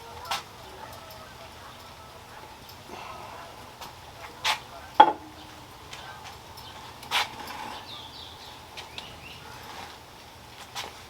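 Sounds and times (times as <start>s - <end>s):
bird chirps: 7.6s - 9.6s.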